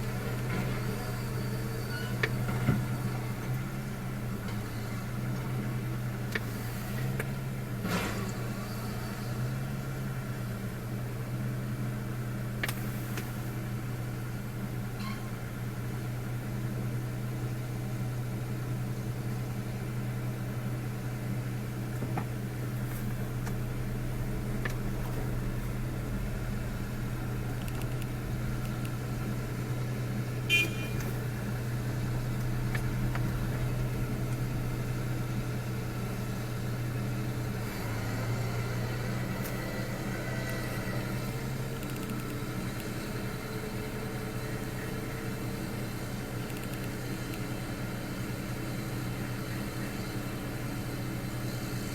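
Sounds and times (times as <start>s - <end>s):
car engine droning: 19.4s - 45.4s.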